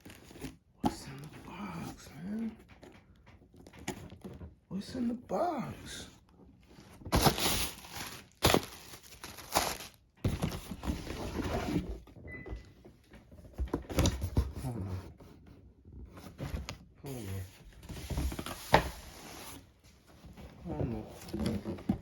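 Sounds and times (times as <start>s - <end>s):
cardboard box rustling and scraping: 6.7s - 12.1s, 16.0s - 22.0s
box thumps: 7.0s - 11.2s.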